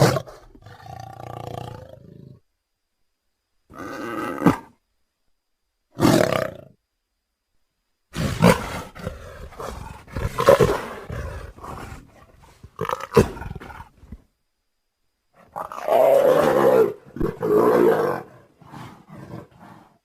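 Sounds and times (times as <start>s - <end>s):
leopard roaring and growling: 8.1s - 14.2s, 15.4s - 20.0s.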